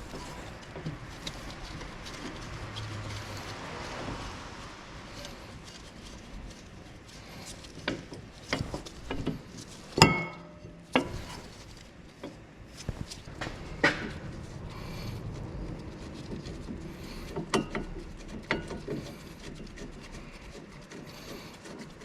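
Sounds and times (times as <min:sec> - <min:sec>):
sharp ringing metal clank: 0:10.0 - 0:10.8.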